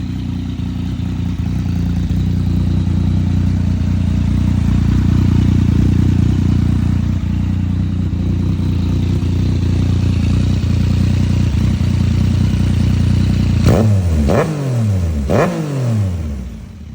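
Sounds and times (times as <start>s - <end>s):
motorcycle engine idling and revving: 0.0s - 16.9s.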